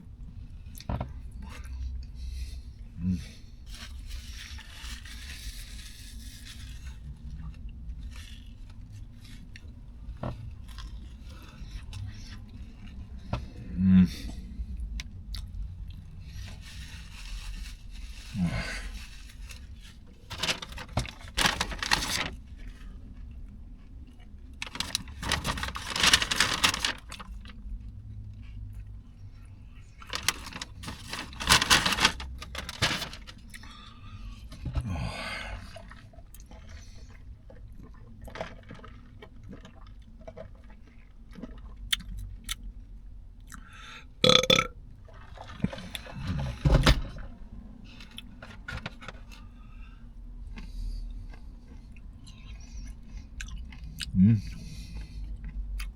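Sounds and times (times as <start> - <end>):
rustling and scraping: 3.7 - 13.5, 16.2 - 23.2, 24.6 - 27.6, 30.0 - 33.6, 47.9 - 49.6
sandwich chewing: 3.7 - 13.6, 19.0 - 27.8, 48.0 - 55.9.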